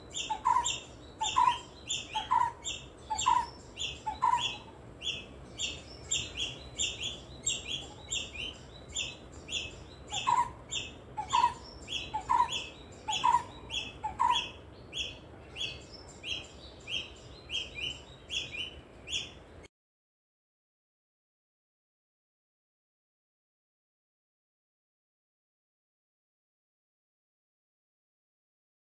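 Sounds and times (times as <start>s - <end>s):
bird lower falling call: 0.1s - 19.3s.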